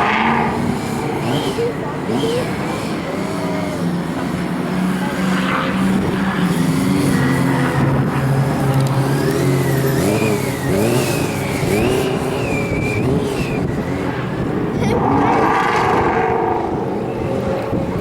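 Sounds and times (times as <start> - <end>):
vehicle engines revving: 0.0 - 18.0.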